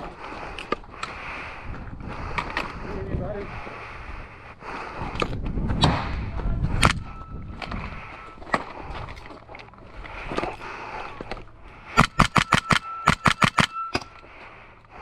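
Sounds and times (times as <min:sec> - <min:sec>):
airsoft gun shots: 0:12.0 - 0:14.0.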